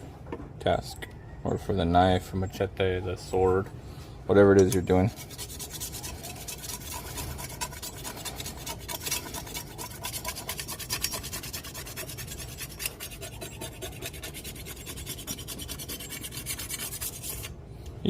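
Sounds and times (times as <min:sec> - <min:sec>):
sharpening stone scraping steel blade: 0:04.7 - 0:17.6.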